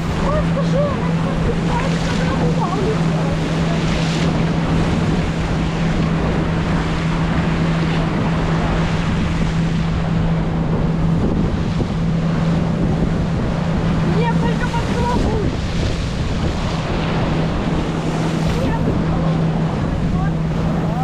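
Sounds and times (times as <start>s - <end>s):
motorboat engine droning: 0.0s - 21.0s
water rushing: 0.0s - 21.0s
wind buffeting microphone: 0.0s - 21.0s.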